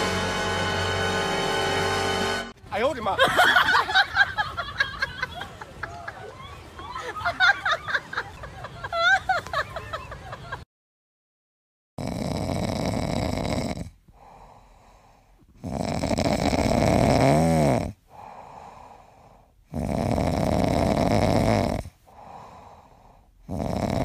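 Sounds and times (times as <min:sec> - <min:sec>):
puppy snoring: 0:12.0 - 0:14.5, 0:15.4 - 0:18.3, 0:19.6 - 0:22.0, 0:23.4 - 0:24.0
faint breathing: 0:14.0 - 0:15.6, 0:18.0 - 0:19.7, 0:21.9 - 0:23.5.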